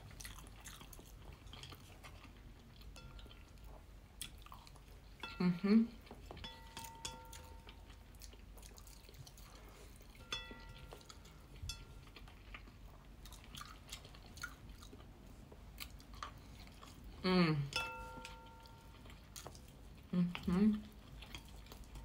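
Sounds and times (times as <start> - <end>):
person chewing food: 0.0 - 22.0
chopsticks tapping on ceramic plate: 6.3 - 7.8
plate ringing: 6.4 - 7.7, 10.2 - 11.1, 17.8 - 18.9.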